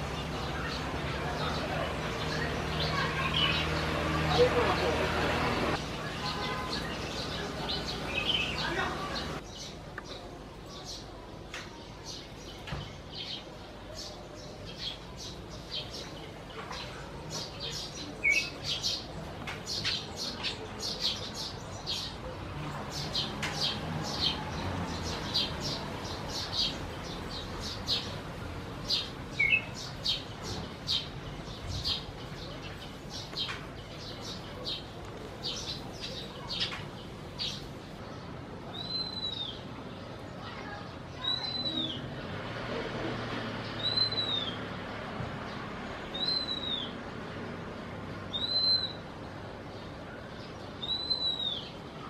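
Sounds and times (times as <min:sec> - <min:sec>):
birds chirping: 0:00.0 - 0:52.0
arched bird whistle: 0:46.2 - 0:46.9.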